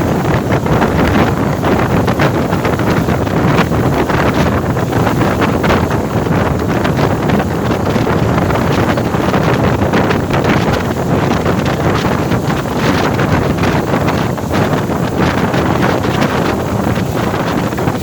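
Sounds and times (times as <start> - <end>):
ferry running noise: 0.0 - 18.0
wind buffeting microphone: 0.0 - 18.0.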